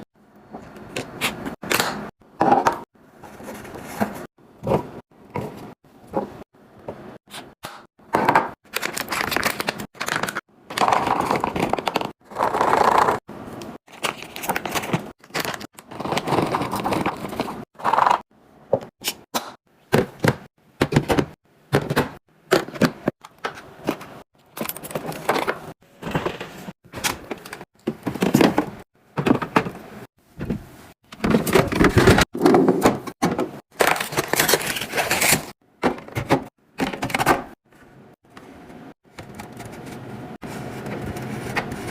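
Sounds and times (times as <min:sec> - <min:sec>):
containers and bottles handled: 0:19.9 - 0:37.3.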